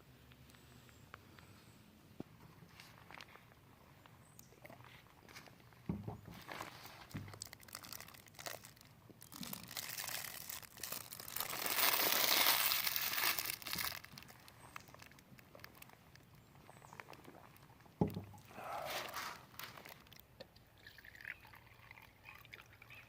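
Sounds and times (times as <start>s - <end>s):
crinkling handling noise: 2.2s - 20.5s.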